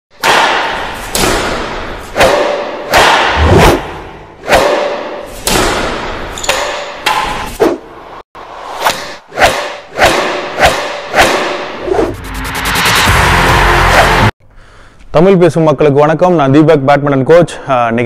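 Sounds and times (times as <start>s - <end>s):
heavy reverberant hits: 0.1s - 7.4s.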